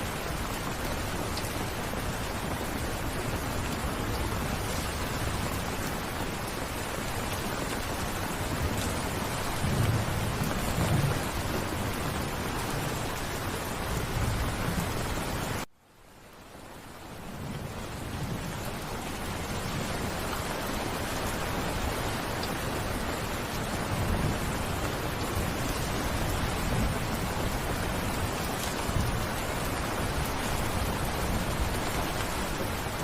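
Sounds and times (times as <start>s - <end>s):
steady rain: 0.0s - 33.0s
distant thunder rumble: 8.4s - 13.2s.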